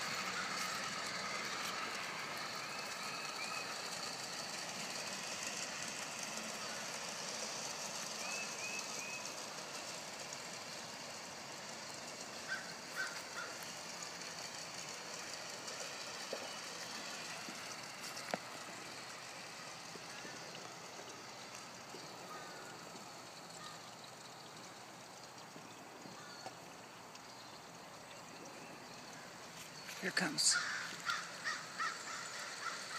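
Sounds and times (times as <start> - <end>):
steady outdoor hiss: 0.0 - 32.9
bird chirps: 8.1 - 9.4.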